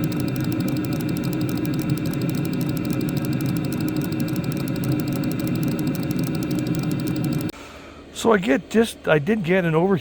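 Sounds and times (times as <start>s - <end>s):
fuel pump ticking: 0.0s - 7.5s
heater burner and fan rushing: 0.0s - 8.2s.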